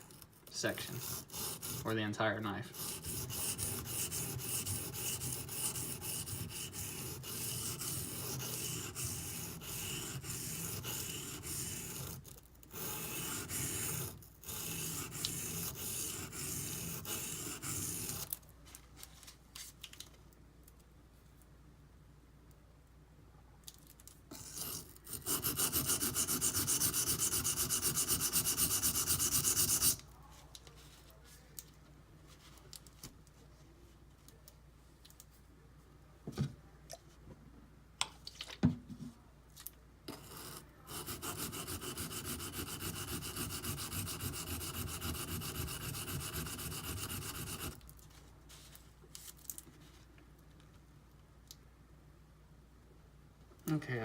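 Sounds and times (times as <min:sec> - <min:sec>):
knife scrubbing on sharpening stone: 0:24.4 - 0:30.0, 0:40.1 - 0:47.8.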